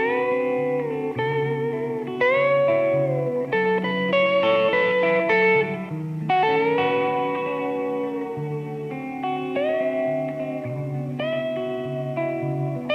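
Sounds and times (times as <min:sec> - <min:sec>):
guitar plucking notes and chords: 0:00.0 - 0:12.9.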